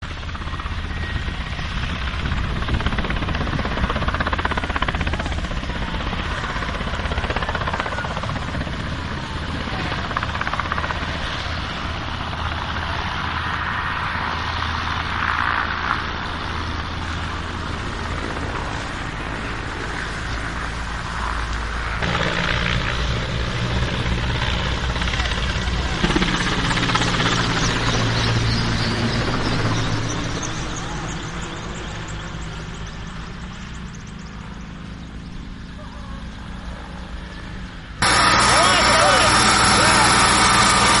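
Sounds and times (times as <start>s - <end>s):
helicopter rotor and engine: 0.0s - 41.0s.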